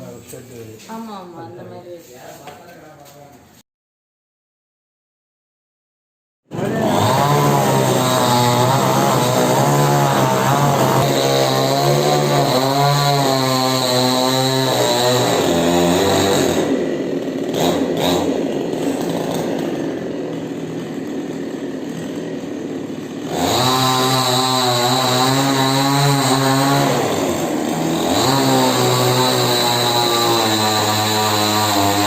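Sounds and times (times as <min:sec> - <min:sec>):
chainsaw cutting wood: 0:06.5 - 0:32.0.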